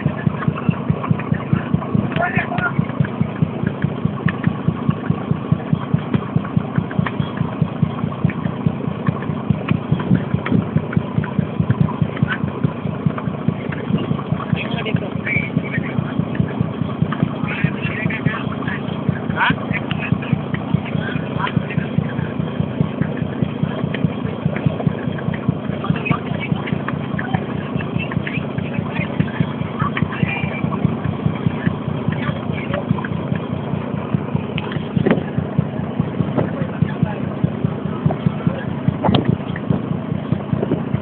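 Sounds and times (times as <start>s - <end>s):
boat engine pulsing: 0.0s - 41.0s.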